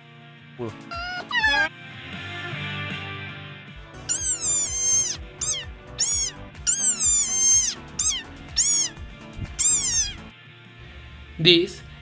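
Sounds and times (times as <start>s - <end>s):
background music: 0.0s - 12.0s
fox whining calls: 0.8s - 1.7s, 4.1s - 10.3s.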